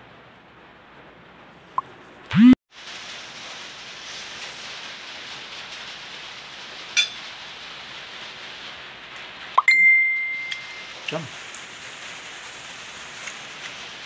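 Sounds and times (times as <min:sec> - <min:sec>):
steady rain hiss: 0:02.7 - 0:14.0.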